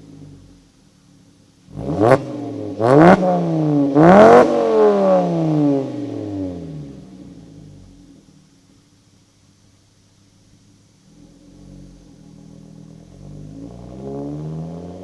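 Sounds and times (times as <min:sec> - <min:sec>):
car engine revving: 0:01.7 - 0:08.0, 0:11.1 - 0:15.0.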